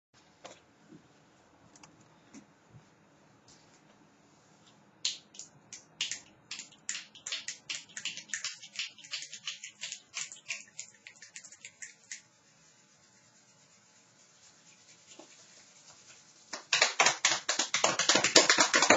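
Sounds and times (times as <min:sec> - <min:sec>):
fingers snapping: 0:05.0 - 0:11.9.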